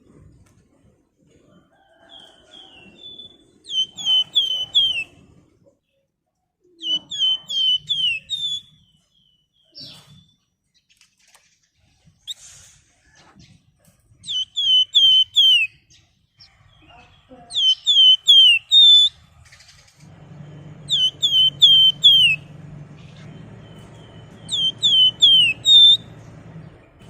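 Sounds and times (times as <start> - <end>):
songbird whistling sharp notes: 3.0 - 5.1, 6.8 - 8.9, 14.2 - 15.8, 17.5 - 19.2, 20.5 - 22.5, 23.6 - 26.2.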